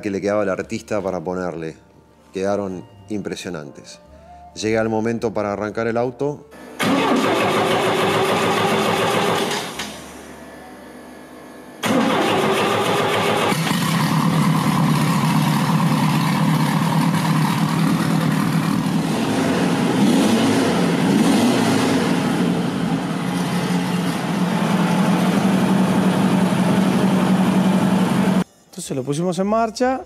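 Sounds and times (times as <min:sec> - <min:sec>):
racing car engine idling and revving: 0:12.4 - 0:28.4.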